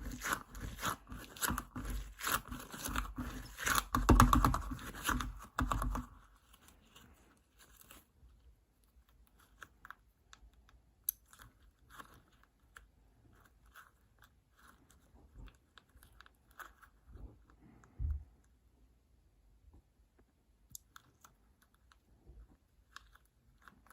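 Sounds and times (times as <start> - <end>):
squishy toy squelching: 0.0 - 8.4
faint sticky crackles and clicks: 0.0 - 18.6, 20.1 - 23.9.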